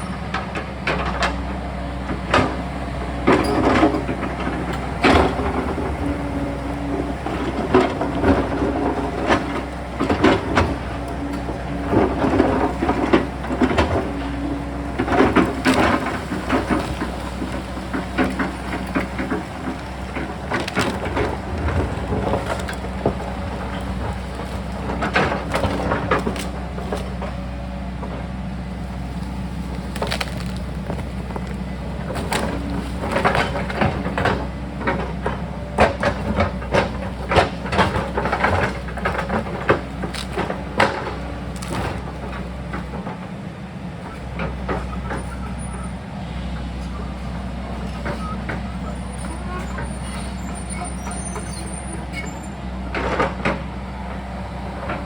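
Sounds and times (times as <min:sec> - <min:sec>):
excavator diesel engine running: 0:00.0 - 0:55.0
rock and earth breaking loose: 0:28.8 - 0:34.4
bucket digging into rock: 0:29.1 - 0:34.1.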